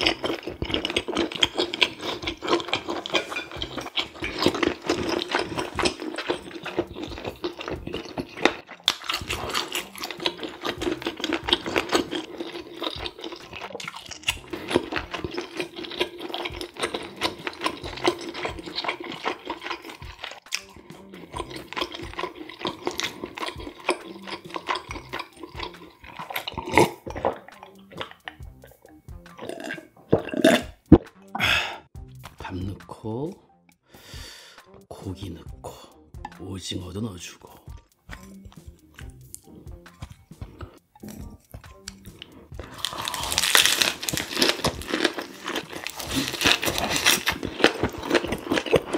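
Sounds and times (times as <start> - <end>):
wet chewing mouth sounds: 0.0 - 32.3, 37.5 - 48.9
background music: 0.0 - 48.9
gulps of beer swallowed: 29.4 - 31.9.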